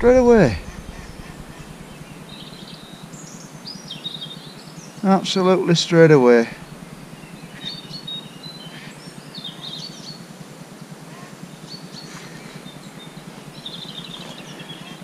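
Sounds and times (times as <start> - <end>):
bird trill: 0.0 - 5.0, 6.5 - 10.4, 11.0 - 15.0
outdoor background hiss: 0.0 - 15.0
songbirds chirping: 0.0 - 15.0.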